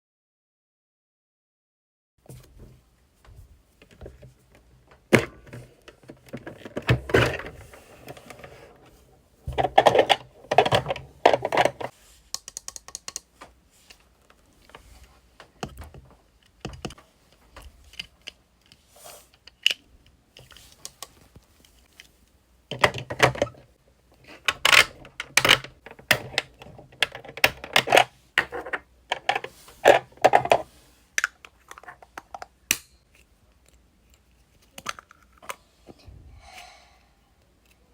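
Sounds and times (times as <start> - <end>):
plastic toy pieces clicking: 12.3 - 13.3.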